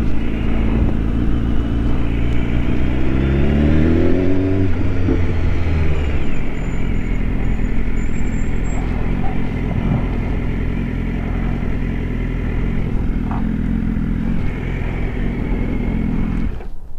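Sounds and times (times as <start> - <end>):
motorcycle engine running: 0.0 - 16.7.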